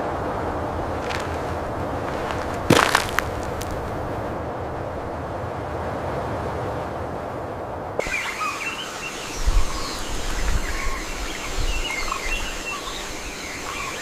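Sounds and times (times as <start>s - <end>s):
birds chirping: 8.0s - 14.0s.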